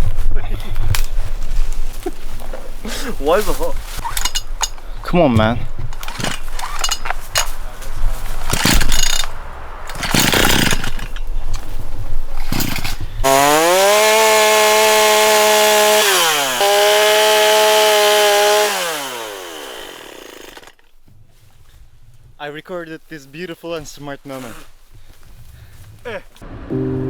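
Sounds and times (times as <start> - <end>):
chainsaw engine revving: 9.9 - 11.1, 12.5 - 20.8.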